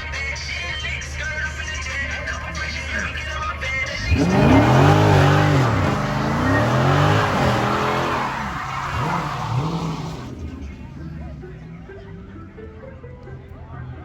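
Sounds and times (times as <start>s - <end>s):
music: 0.0s - 4.1s, 10.4s - 14.0s
car engine revving: 1.0s - 12.3s.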